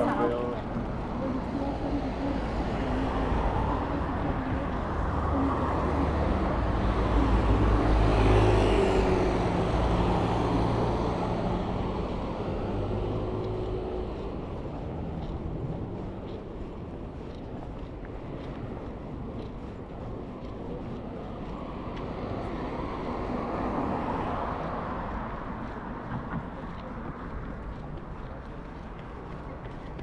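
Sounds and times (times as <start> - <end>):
vehicle engine hum passing by: 0.0 - 17.4.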